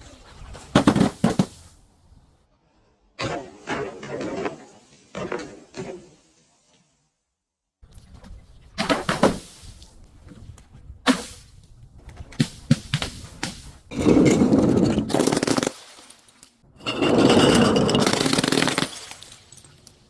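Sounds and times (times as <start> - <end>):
objects cracking and knocking: 17.2 - 20.0
loud continuous crunching: 17.4 - 20.0.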